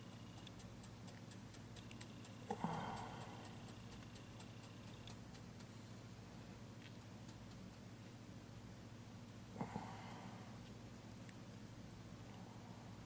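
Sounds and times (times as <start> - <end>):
light ticking: 0.0 - 5.8, 7.2 - 7.8.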